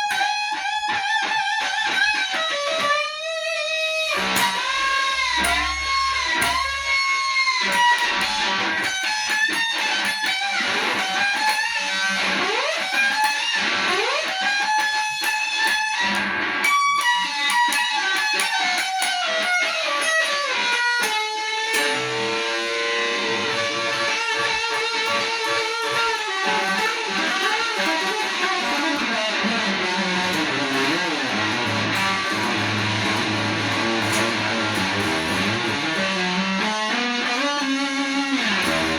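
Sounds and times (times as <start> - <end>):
electric guitar solo: 0.0 - 38.9
bass line: 30.3 - 36.0.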